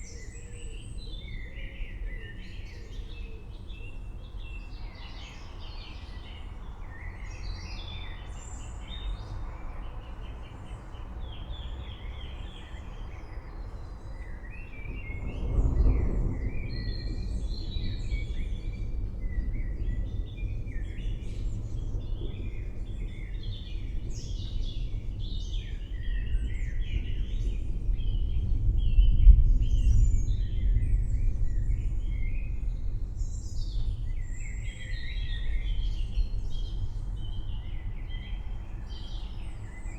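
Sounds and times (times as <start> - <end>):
thunder rumbling: 14.8 - 24.1, 26.7 - 34.4.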